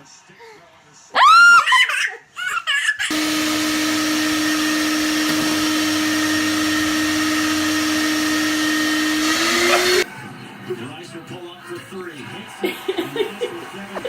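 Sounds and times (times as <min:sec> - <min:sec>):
small electric motor humming: 0:03.1 - 0:10.0.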